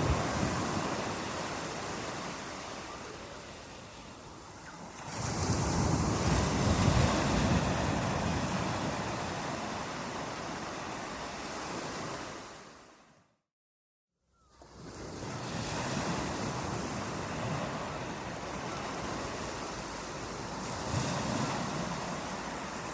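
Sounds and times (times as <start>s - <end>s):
ocean waves washing ashore: 0.0s - 13.1s, 14.7s - 22.9s.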